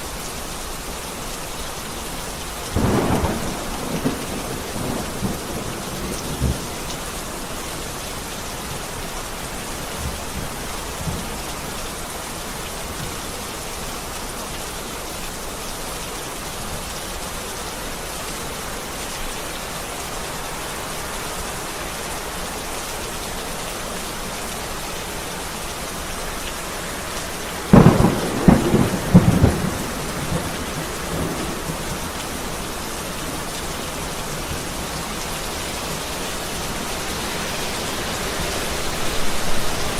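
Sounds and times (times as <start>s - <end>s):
heavy rain pouring: 0.0s - 39.9s
thunderclap rumbling: 2.8s - 6.7s, 27.7s - 32.5s.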